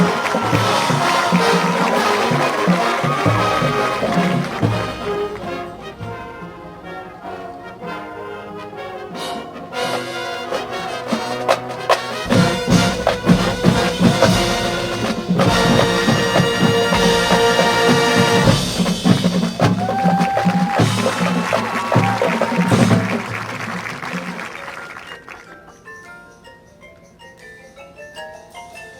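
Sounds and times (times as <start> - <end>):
drum hits: 0.0 - 5.5, 12.3 - 23.8
sustained brass chords: 0.0 - 19.3
marching band playing: 0.0 - 25.3.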